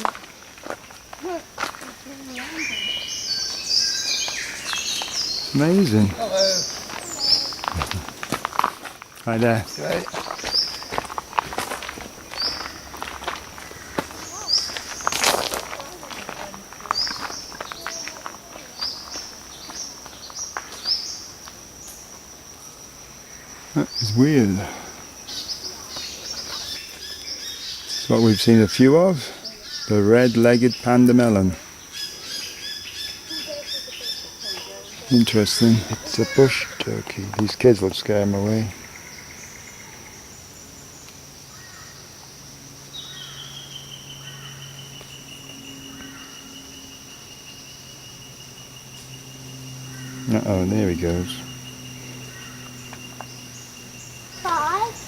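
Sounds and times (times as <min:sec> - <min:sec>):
footsteps on a forest track: 0:00.0 - 0:22.3, 0:24.5 - 0:40.0
high-pitched insect drone: 0:00.0 - 0:55.0
faint bird calls: 0:01.2 - 0:08.3, 0:12.3 - 0:21.3, 0:31.6 - 0:37.2, 0:49.8 - 0:55.0.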